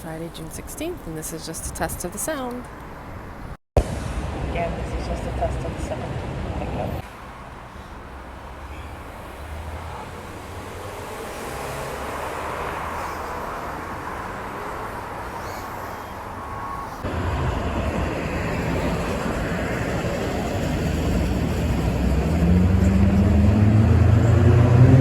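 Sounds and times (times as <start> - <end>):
road vehicle passing: 0.5 - 25.0
steady low rumble: 3.8 - 7.0, 17.0 - 24.2.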